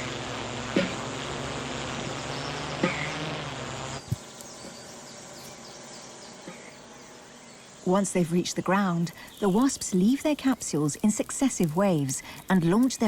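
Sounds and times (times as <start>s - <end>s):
drone buzzing: 0.0s - 8.0s.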